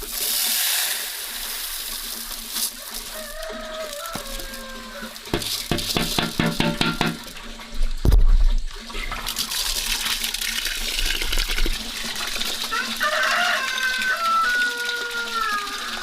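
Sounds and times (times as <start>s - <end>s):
rooster crowing: 3.0s - 5.2s, 12.7s - 16.0s.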